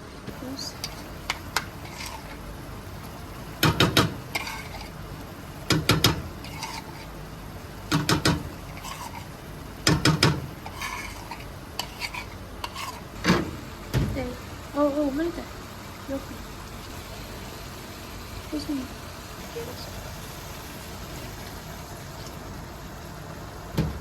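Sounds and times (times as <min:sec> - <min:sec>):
cooking utensils knocking and clattering: 0:00.7 - 0:02.4, 0:03.6 - 0:05.0, 0:05.6 - 0:07.1, 0:07.9 - 0:14.2.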